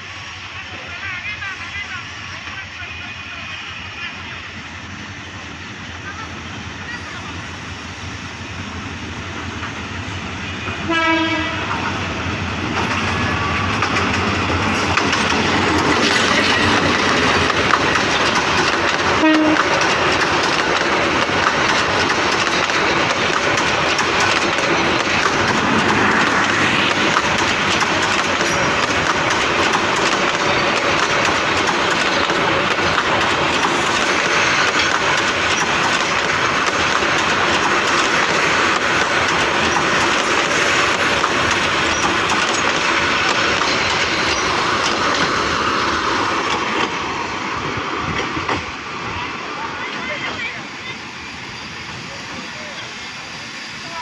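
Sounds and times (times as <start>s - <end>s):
train wheels rumbling on rails: 0.0s - 54.0s
train horn blast: 10.8s - 11.9s, 19.1s - 19.8s.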